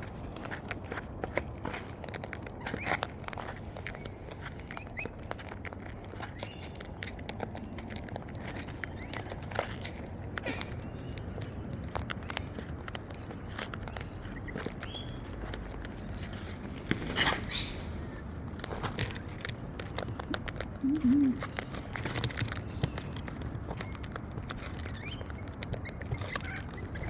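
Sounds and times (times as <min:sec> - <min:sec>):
beaks clicking and crunching food: 0:00.0 - 0:27.0
bird chirps: 0:10.7 - 0:15.3, 0:17.2 - 0:17.8, 0:24.9 - 0:27.0.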